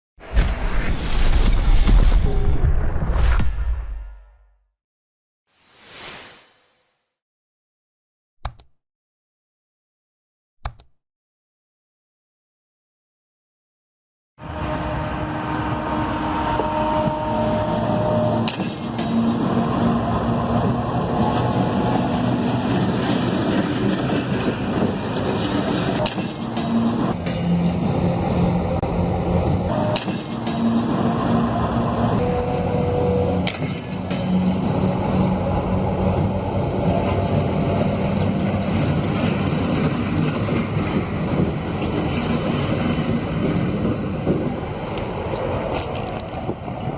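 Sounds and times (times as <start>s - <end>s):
sharp click: 8.4s - 8.8s, 10.6s - 11.0s
train wheels rumbling on rails: 14.5s - 46.9s.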